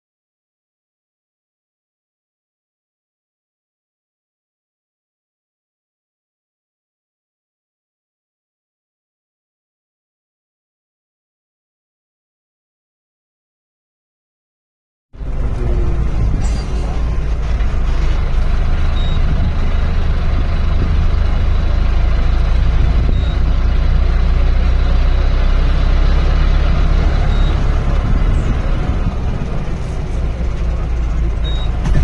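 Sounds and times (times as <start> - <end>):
road and motion noise: 15.2 - 32.0
vehicle engine rumble: 15.2 - 32.0.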